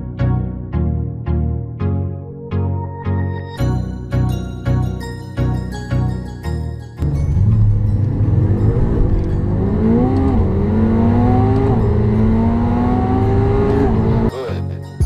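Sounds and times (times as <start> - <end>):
sports car accelerating hard: 7.0 - 14.3.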